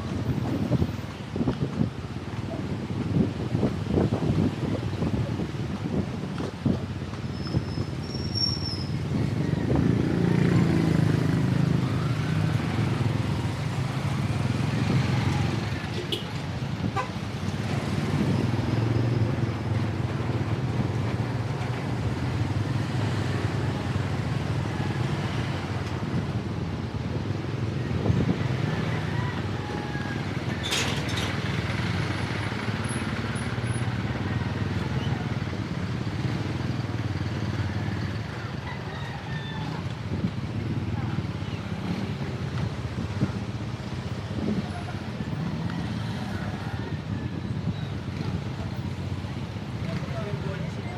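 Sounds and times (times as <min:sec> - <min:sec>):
motorcycle and car engines passing: 0:00.0 - 0:50.9
brief high squeaks: 0:07.3 - 0:08.9.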